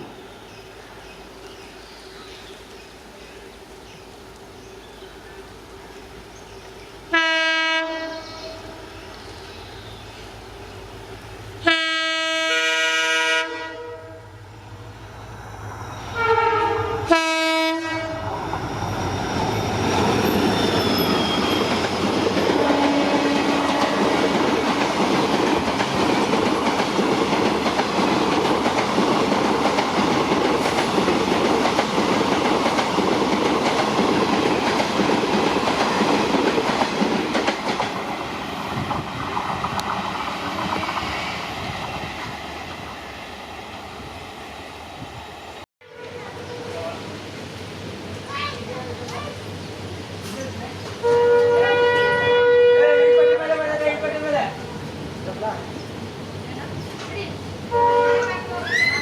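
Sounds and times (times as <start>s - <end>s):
diesel locomotive horn blasts: 7.1s - 8.9s, 11.6s - 14.4s, 16.1s - 18.4s, 22.6s - 24.3s, 45.8s - 47.0s, 51.0s - 53.8s, 57.7s - 58.5s.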